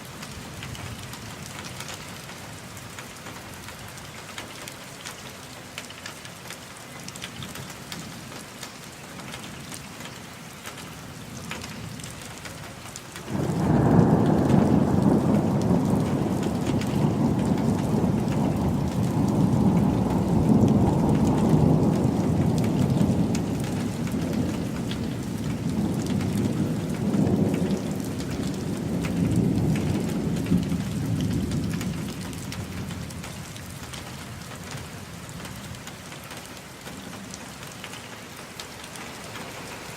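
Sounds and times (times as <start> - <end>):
rain falling: 0.0 - 39.9
thunder rolling: 13.3 - 33.2.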